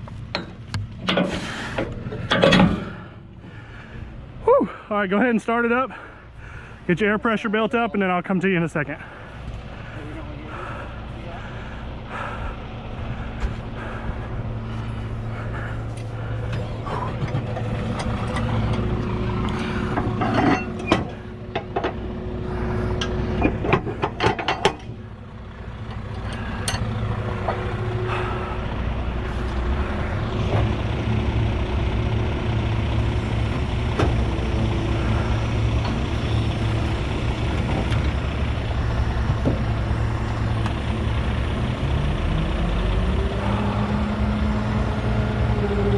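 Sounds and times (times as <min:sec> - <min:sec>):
diesel truck engine idling: 0:00.0 - 0:45.9
metallic knocks and clanks: 0:00.3 - 0:03.0, 0:19.9 - 0:22.0, 0:23.0 - 0:25.0.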